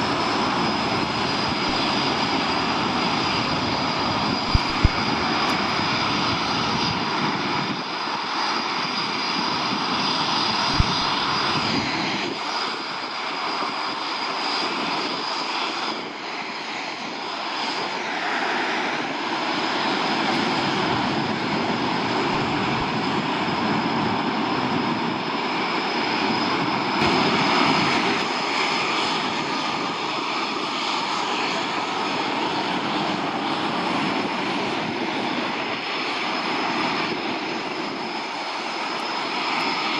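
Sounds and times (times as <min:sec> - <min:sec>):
high whine: 0:00.0 - 0:06.4, 0:10.6 - 0:12.3, 0:20.4 - 0:24.0
aircraft engines roaring: 0:00.0 - 0:39.9.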